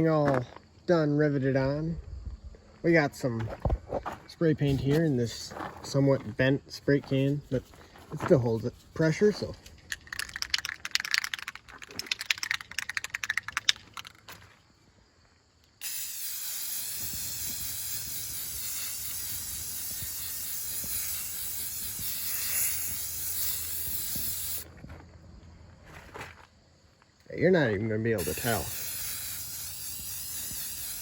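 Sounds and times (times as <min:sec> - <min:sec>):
spray can rattling: 0:08.4 - 0:14.3, 0:15.8 - 0:24.7, 0:28.2 - 0:31.0
spray can hissing: 0:15.8 - 0:24.7, 0:28.2 - 0:31.0.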